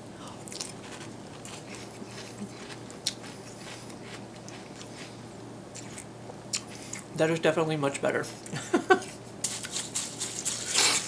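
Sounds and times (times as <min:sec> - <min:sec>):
chewing crunchy cereal: 0:00.3 - 0:07.1, 0:09.0 - 0:11.0.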